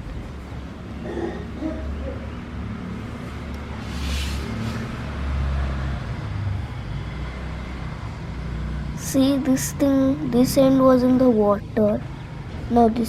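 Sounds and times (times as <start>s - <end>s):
low outdoor rumble: 0.0s - 5.2s
brief hiss: 3.8s - 5.0s.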